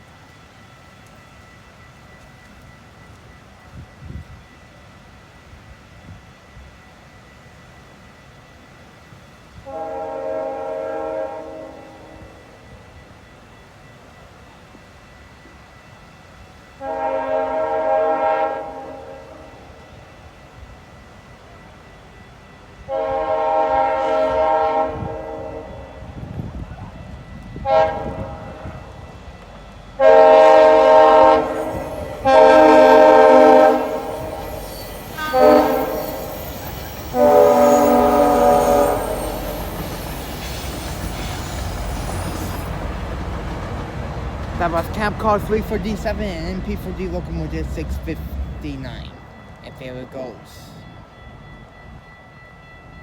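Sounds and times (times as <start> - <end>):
train rumbling past: 0.0 - 53.0
train chord horn blast: 9.6 - 12.6, 16.7 - 19.8, 22.8 - 26.2, 27.6 - 29.0, 30.0 - 43.0.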